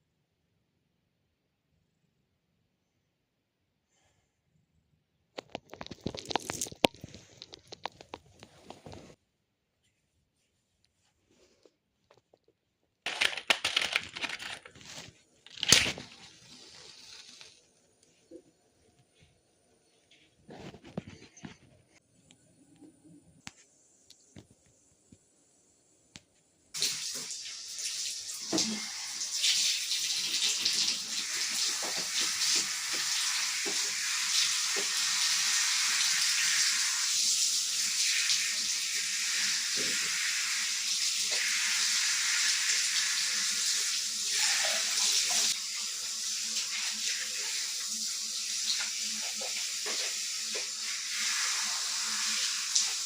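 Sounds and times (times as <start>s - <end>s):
tap water running into basin: 26.8s - 53.0s.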